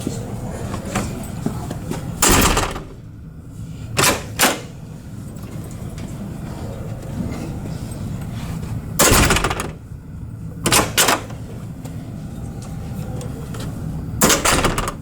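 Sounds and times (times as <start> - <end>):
door latch clacks: 2.2 - 3.1, 4.0 - 4.8, 9.0 - 9.8, 10.7 - 11.3, 14.2 - 15.0.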